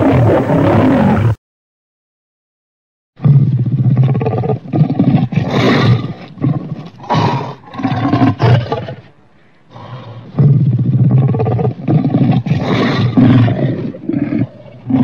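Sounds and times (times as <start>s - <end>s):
monster roar: 0.0s - 1.4s.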